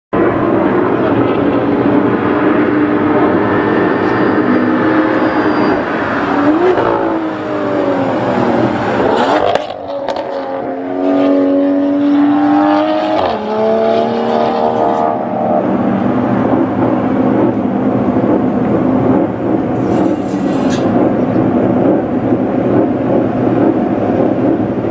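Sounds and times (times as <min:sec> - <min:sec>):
car engine revving: 0:00.2 - 0:24.9.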